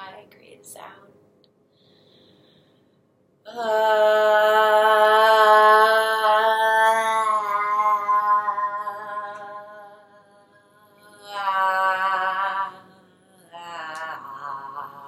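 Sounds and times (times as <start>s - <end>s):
woman chanting a held note: 11.0s - 15.0s.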